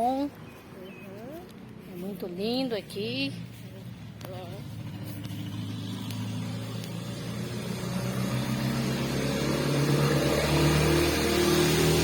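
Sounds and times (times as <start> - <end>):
vehicle driving past: 2.8 - 12.0.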